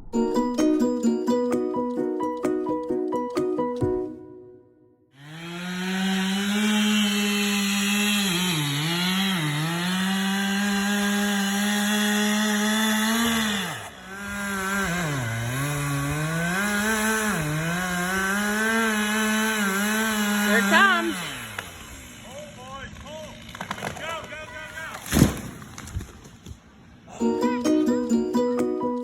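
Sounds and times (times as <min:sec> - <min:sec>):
chainsaw cutting wood: 0:05.2 - 0:26.5.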